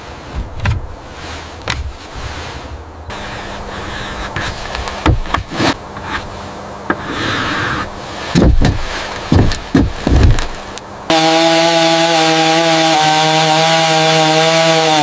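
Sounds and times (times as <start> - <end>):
knocks and heavy thumps: 0.3 - 1.0, 1.6 - 2.4, 3.4 - 6.3, 6.9 - 10.6.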